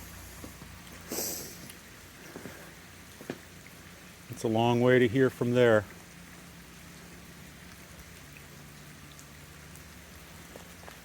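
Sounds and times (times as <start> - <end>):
dripping water: 0.0 - 11.0
low steady hum: 0.0 - 11.0
rain patter: 0.0 - 11.0.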